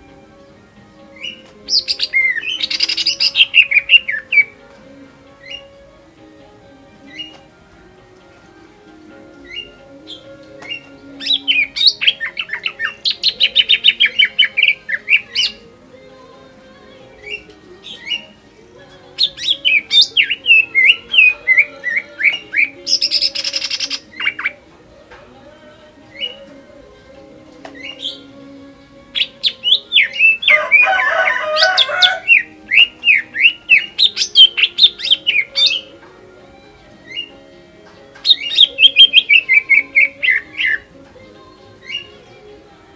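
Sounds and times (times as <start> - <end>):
bird singing rapid notes: 1.1 - 4.6, 5.2 - 5.8, 7.0 - 7.6, 9.4 - 15.8, 17.0 - 24.7, 27.7 - 36.0, 36.9 - 40.9, 41.8 - 42.5.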